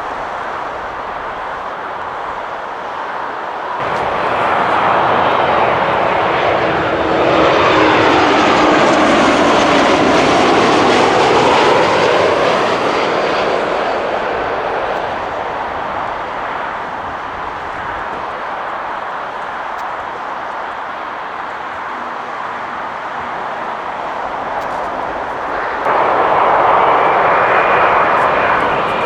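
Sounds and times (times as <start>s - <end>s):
jet airliner engines roaring: 0.0s - 29.0s.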